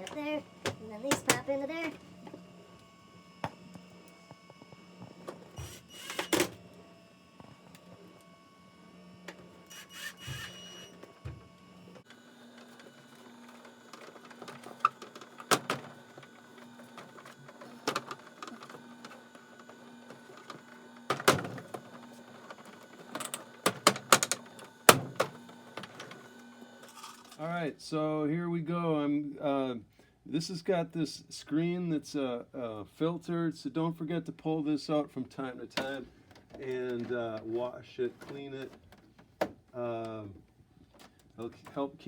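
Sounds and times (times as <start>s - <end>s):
plastic panels clicking into place: 20.4s - 26.2s.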